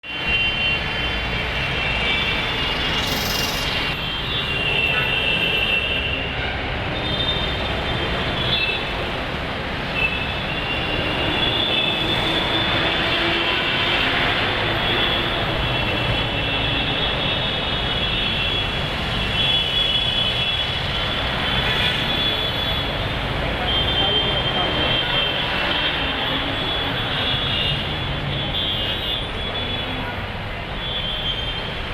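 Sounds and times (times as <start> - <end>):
street traffic rumble: 0.0 - 31.9
train wheels squealing: 2.8 - 3.9.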